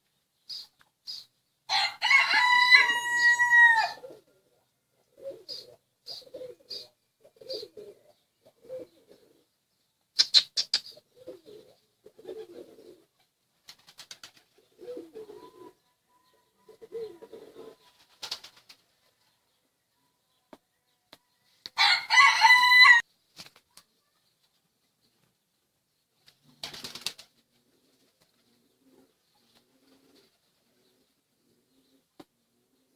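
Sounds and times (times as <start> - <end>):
rooster crowing: 1.7 - 4.1, 21.8 - 23.0
pigeons cooing: 2.0 - 9.6, 10.3 - 13.3, 13.9 - 18.4, 26.5 - 32.9.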